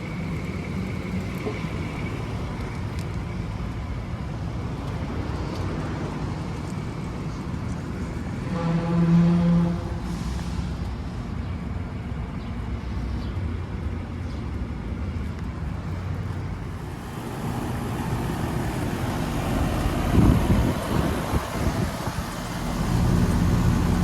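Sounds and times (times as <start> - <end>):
condenser fan whoosh: 16.6 - 24.0.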